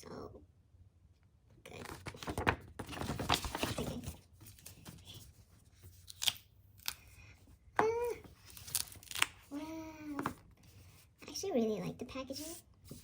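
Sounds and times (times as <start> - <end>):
packaging crinkling and rustling: 1.7 - 5.3, 8.4 - 9.5.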